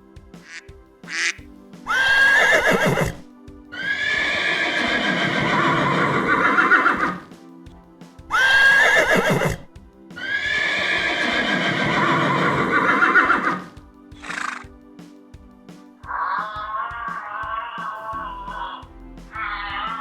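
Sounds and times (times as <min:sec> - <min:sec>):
background music: 0:00.0 - 0:20.0
horse whinnying: 0:01.2 - 0:03.2, 0:03.8 - 0:07.2, 0:08.4 - 0:09.7, 0:10.3 - 0:13.6.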